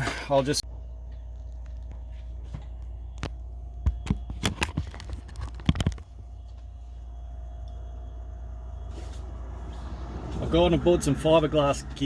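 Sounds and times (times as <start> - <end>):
steady low hum: 0.0 - 12.0
objects clicking and knocking: 3.2 - 6.1.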